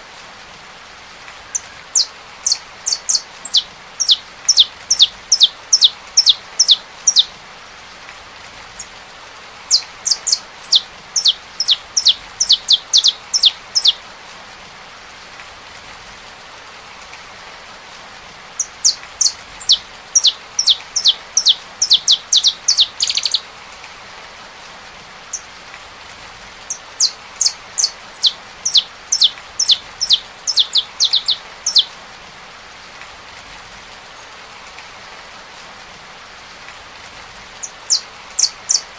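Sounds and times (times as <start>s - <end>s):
rain hiss: 0.0s - 38.9s
finch singing high notes: 27.0s - 31.9s.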